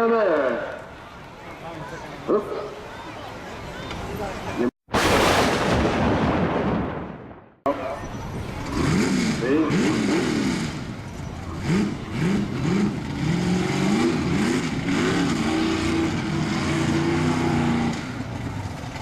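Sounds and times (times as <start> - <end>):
truck engine revving: 8.0 - 19.0.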